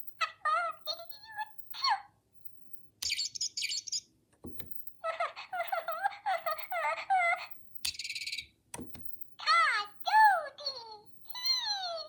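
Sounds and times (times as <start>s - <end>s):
high bird-like chirps: 3.0s - 4.1s, 7.9s - 8.5s.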